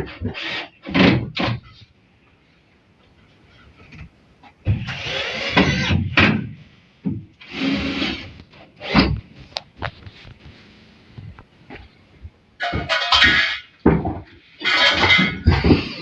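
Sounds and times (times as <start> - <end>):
scraping or rubbing: 7.5 - 12.0.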